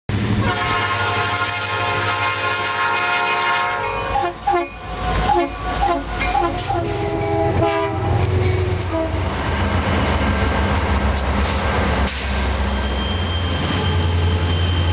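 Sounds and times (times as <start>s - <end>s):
locomotive engines rumbling: 0.1s - 14.9s
locomotive air horn: 0.4s - 9.3s.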